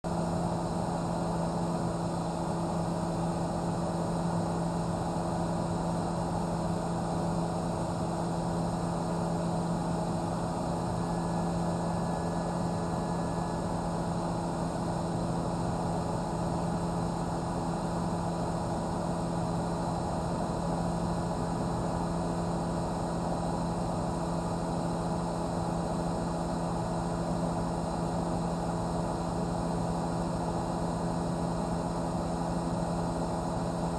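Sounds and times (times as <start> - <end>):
helicopter engine and rotor drone: 0.1 - 33.9.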